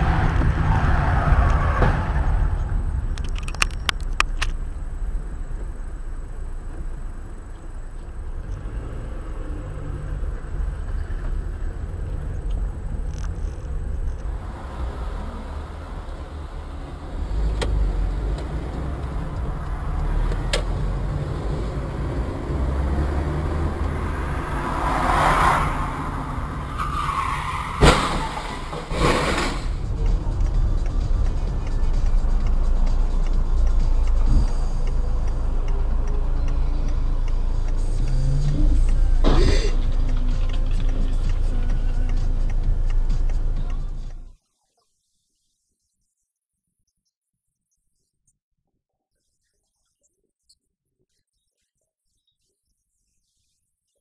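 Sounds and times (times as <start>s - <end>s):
car engine and road rumble: 0.0s - 44.4s
rushing swell: 13.7s - 39.2s
sharp knock: 27.8s - 29.8s.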